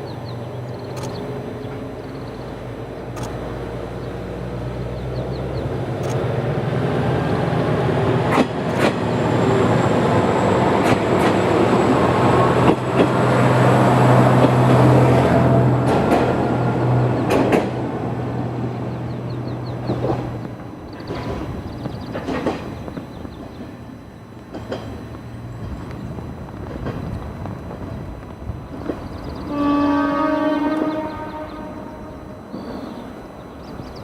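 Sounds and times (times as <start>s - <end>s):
diesel railcar engine drone: 0.0s - 34.0s
wheels clicking over rail joints: 19.8s - 23.6s.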